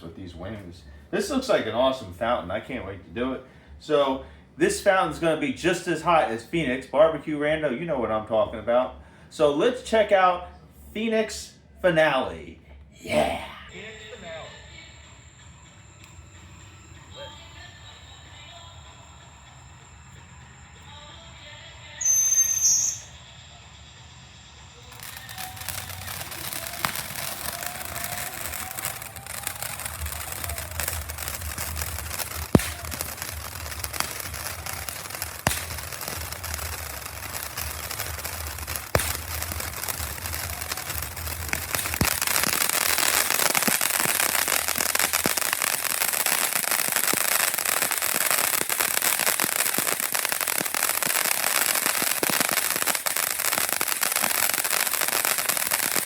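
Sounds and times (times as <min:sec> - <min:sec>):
firework fountain hissing: 0:00.0 - 0:07.7, 0:13.2 - 0:56.0
faint whistle: 0:13.7 - 0:45.6
dense crackling: 0:24.9 - 0:56.0
sharp cracks: 0:24.9 - 0:56.0.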